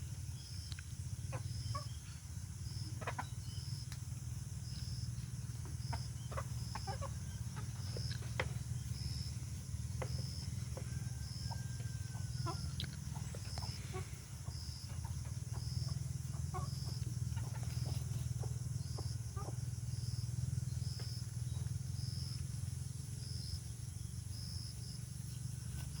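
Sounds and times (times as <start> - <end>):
steady low hum: 0.0 - 26.0
chickens clucking: 1.0 - 20.0.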